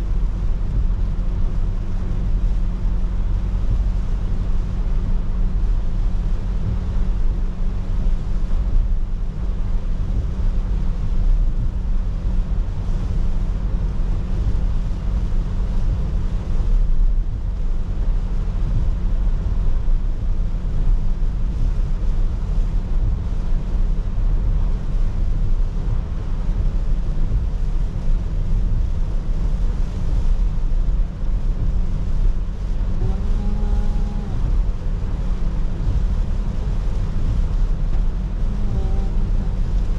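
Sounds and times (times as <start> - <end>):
car engine and tyre hum: 0.0 - 39.9
hiss of wet road: 0.0 - 39.9
rain: 0.0 - 39.9.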